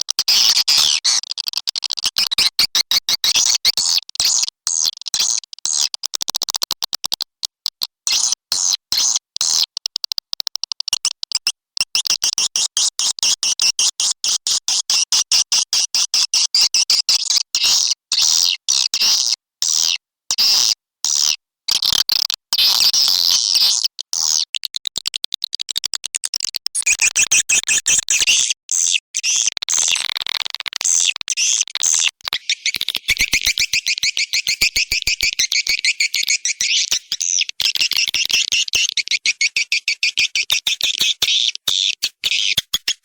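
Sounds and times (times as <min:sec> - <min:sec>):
swiftlets twittering chirps: 0:32.2 - 0:43.0.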